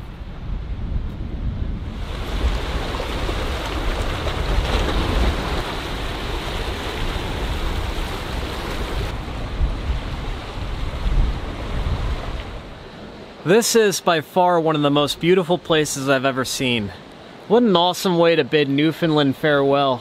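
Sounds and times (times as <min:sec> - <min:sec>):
wind buffeting microphone: 0:00.0 - 0:12.9
ocean surf rushing: 0:01.4 - 0:20.0.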